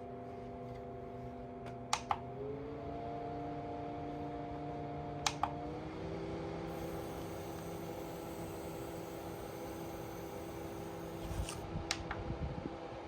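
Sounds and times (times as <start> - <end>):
air cooler fan humming: 4.1 - 13.0.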